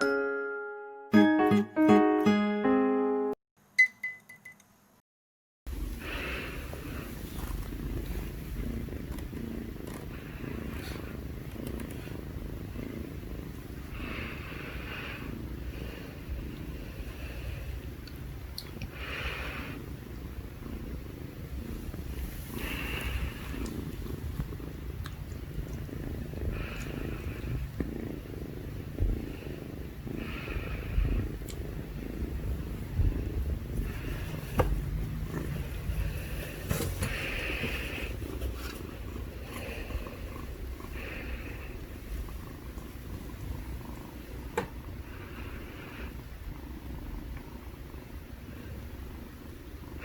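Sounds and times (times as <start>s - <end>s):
kittens purring: 5.7s - 50.0s.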